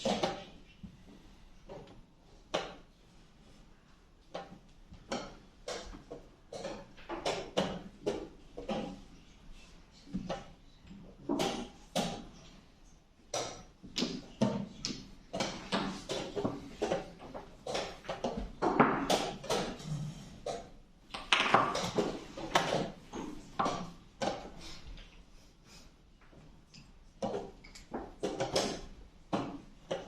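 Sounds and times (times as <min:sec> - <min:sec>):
chess pieces knocking on board: 0:13.4 - 0:19.8, 0:20.5 - 0:24.5.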